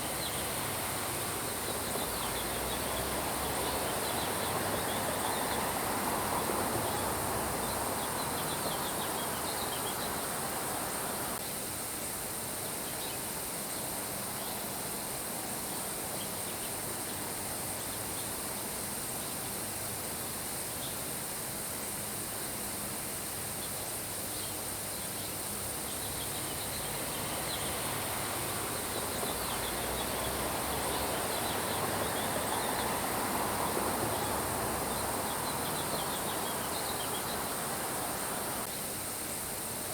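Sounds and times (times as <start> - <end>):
steady rain falling: 0.0 - 11.4, 26.0 - 39.9.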